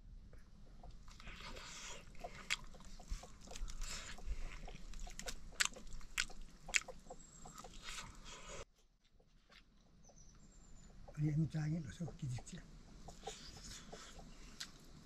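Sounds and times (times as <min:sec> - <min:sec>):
person chewing crunchy food: 0:01.0 - 0:08.6, 0:13.2 - 0:15.0.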